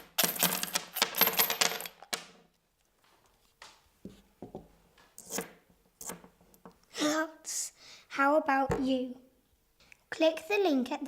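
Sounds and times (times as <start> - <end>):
coins rattling in a money box: 0.0 - 2.0.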